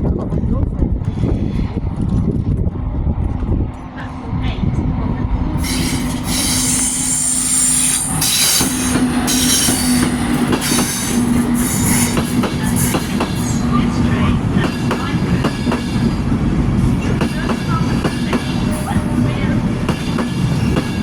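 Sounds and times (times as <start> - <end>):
train wheels squealing: 5.6 - 13.0.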